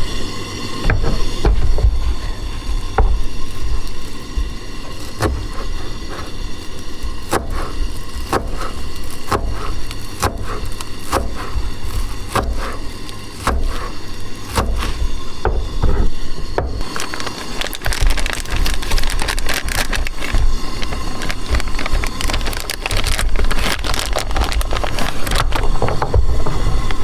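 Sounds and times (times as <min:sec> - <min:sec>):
knife chopping on cutting board: 0:09.3 - 0:12.8, 0:13.4 - 0:16.9.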